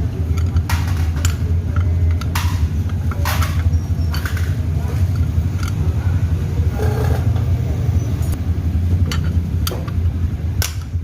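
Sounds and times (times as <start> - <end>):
scooter engine running: 0.0 - 11.0.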